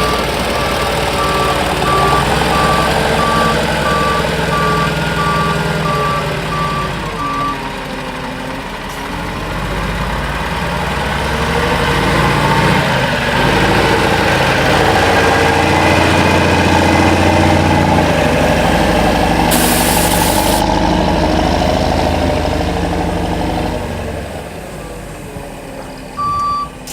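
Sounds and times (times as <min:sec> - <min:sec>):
reversing beeper: 0:00.0 - 0:07.7
diesel truck engine running: 0:00.0 - 0:26.9
short burst of hiss: 0:19.5 - 0:20.6.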